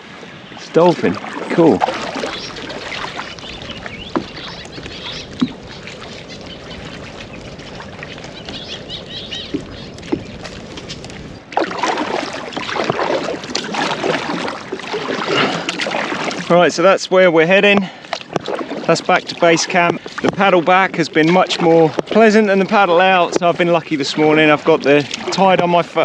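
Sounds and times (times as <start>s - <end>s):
wind on microphone: 0.0s - 16.5s
paddle splashing water: 0.0s - 26.0s.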